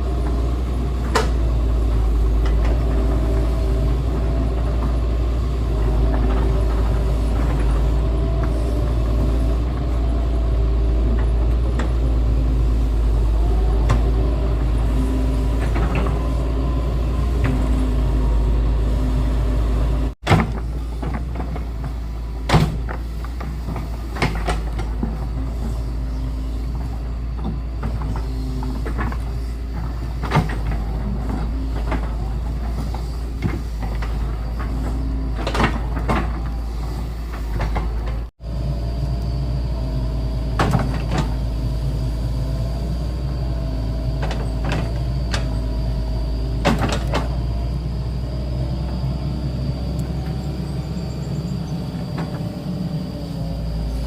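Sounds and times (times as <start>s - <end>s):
diesel excavator engine running: 0.0s - 54.0s
machine knocks and clanks: 20.2s - 25.8s, 26.6s - 38.3s, 40.5s - 41.4s, 46.6s - 47.5s.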